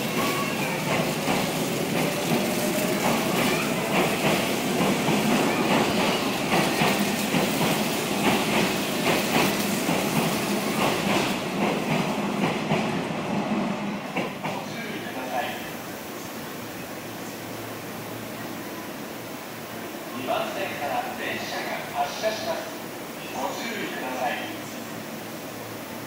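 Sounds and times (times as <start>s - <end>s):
wheels clacking over rail joints: 0.0s - 12.9s.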